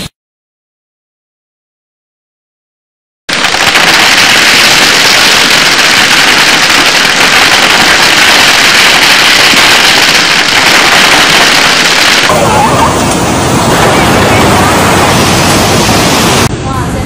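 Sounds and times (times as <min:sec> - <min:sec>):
torrential rain hissing: 0:03.3 - 0:16.5.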